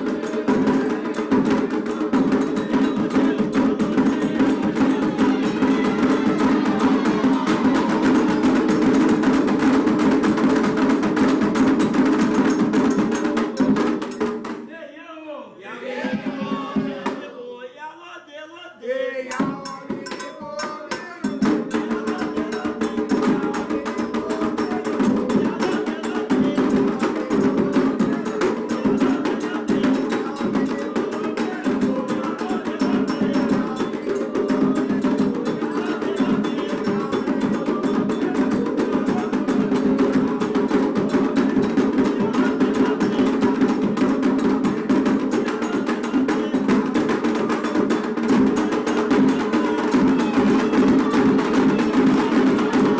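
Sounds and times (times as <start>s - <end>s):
hand drumming: 0.0s - 14.6s, 19.4s - 52.9s
struck bell or wood block: 19.4s - 21.4s.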